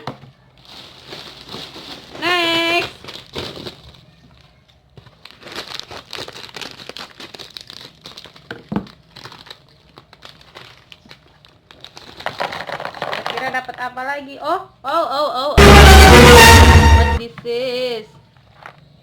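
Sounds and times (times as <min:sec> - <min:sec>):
plastic snack bag rustling: 0:00.4 - 0:13.5.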